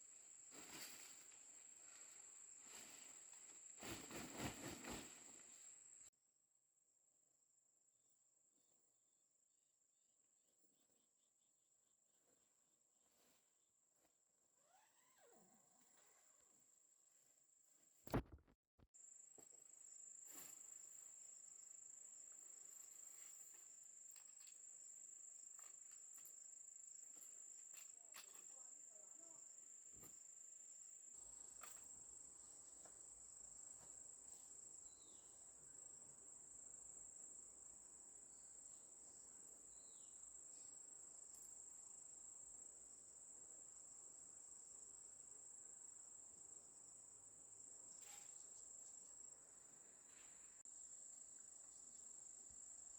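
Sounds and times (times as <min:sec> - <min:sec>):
insects trilling: 0:19.8 - 0:49.8.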